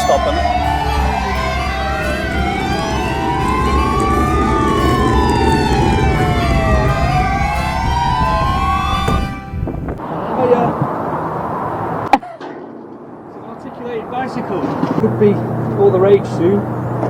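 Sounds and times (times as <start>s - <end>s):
police siren wailing: 0.0s - 10.1s
vehicle engine and road rumble: 0.0s - 17.0s.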